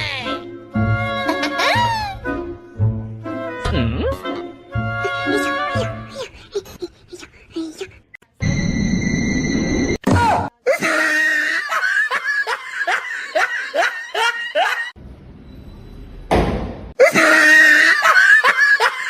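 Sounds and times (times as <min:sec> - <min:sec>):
person laughing hard: 0:10.7 - 0:14.9, 0:17.0 - 0:19.0.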